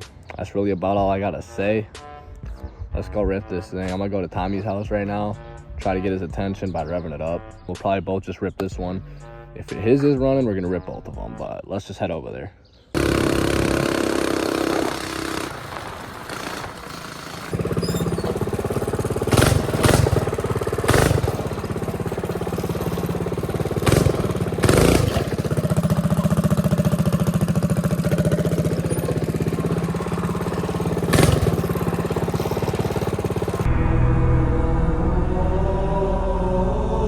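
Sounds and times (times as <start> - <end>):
short loud bursts: 13.0 - 33.7
small engine running: 13.0 - 33.7.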